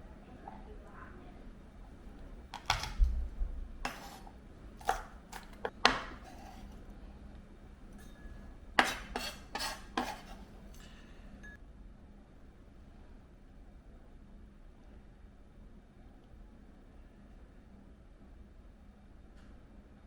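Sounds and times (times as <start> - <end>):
dishes and utensils clattering: 2.6 - 3.1, 3.9 - 6.8, 8.0 - 11.6.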